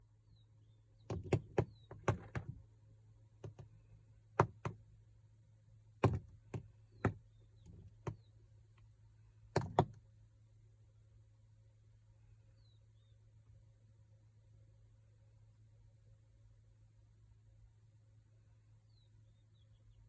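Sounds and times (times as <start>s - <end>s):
faint high bird chirps: 0.2s - 2.0s, 12.3s - 13.4s, 18.8s - 20.0s
sharp knocks and taps: 1.1s - 2.6s, 4.4s - 4.8s, 6.0s - 8.3s, 9.6s - 10.0s.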